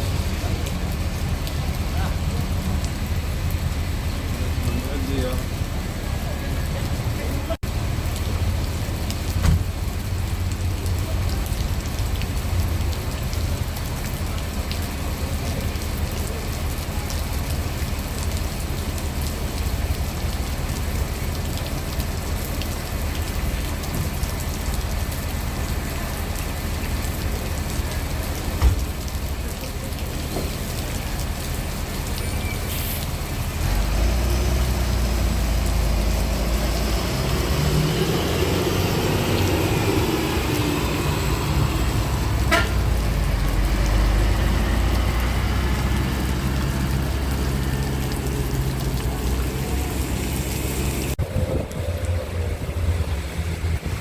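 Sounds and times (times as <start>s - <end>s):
heavy rain pouring: 0.0s - 54.0s
vehicle engine rumble: 0.0s - 54.0s
short thump: 9.4s - 9.7s.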